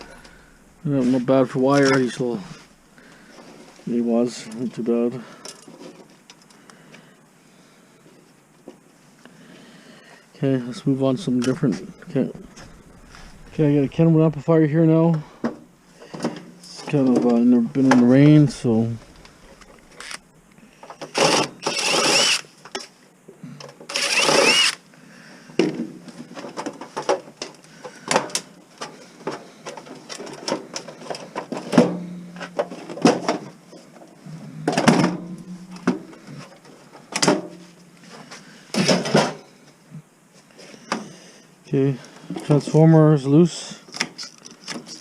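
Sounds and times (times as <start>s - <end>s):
power driver whirring: 21.1s - 22.5s, 23.9s - 24.8s.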